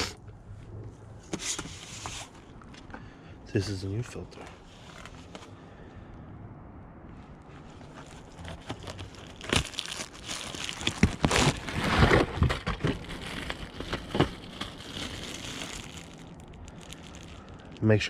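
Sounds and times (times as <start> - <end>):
plastic bag crinkling: 8.0 - 18.0.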